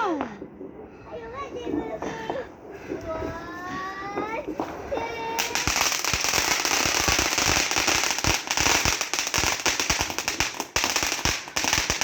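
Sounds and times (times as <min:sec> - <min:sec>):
steady hiss: 0:01.1 - 0:12.0
firework crackling: 0:04.3 - 0:12.0.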